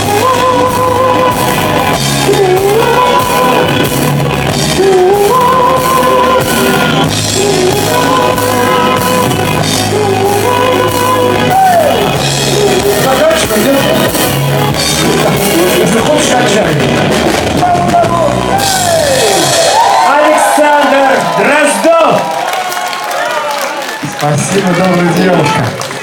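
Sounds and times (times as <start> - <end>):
person singing: 0.0 - 16.9
bass line: 0.0 - 21.8.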